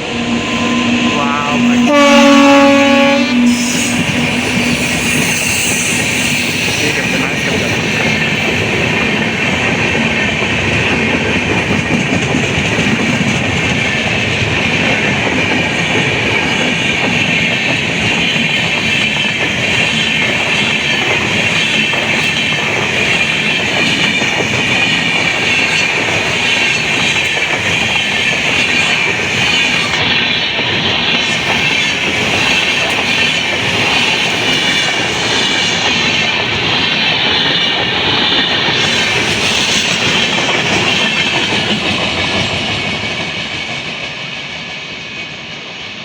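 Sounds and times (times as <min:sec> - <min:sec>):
train wheels rattling on rails: 0:00.0 - 0:46.0.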